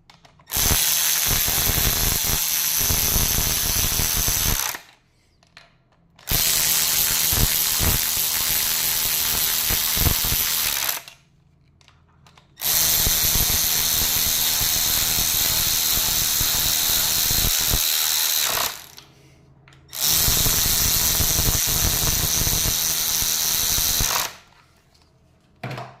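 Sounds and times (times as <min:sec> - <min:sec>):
power tool motor running: 0:00.5 - 0:04.8, 0:06.3 - 0:11.1, 0:12.6 - 0:19.0, 0:19.9 - 0:24.4.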